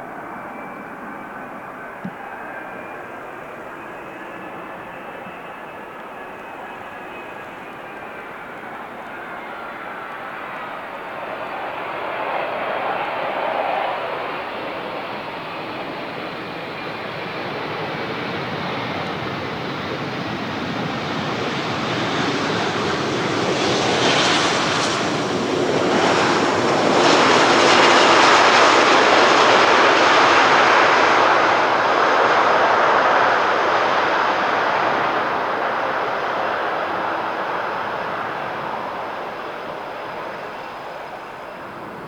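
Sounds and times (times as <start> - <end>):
faint high engine whine: 0.0 - 42.0
jet engine roar: 0.0 - 42.0.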